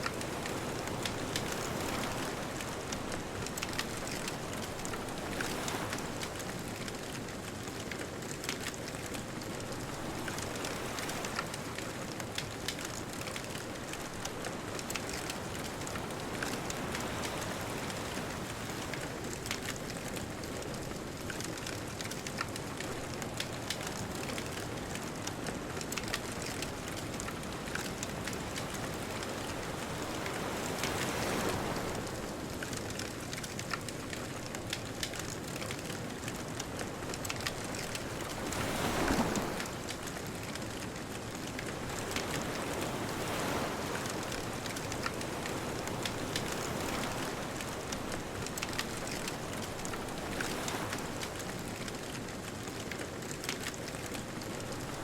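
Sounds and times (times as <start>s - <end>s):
bonfire crackling and popping: 0.0s - 29.1s, 29.7s - 54.9s
ocean waves washing in: 26.3s - 52.6s.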